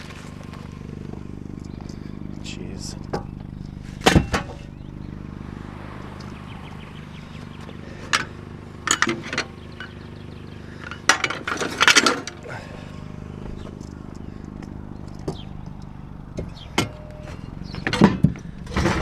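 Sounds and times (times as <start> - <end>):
steady low hum: 0.0 - 18.8
scrap metal clanking: 7.8 - 10.0, 10.8 - 12.6, 16.4 - 19.0.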